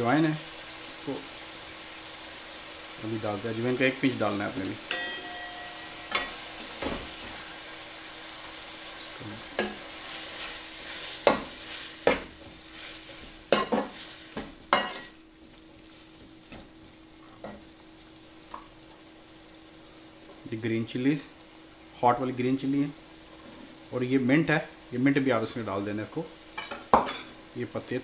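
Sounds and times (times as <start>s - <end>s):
food sizzling in a pan: 0.0s - 28.0s
spoon scraping and knocking pan: 4.8s - 7.5s, 9.4s - 15.2s, 26.6s - 27.4s.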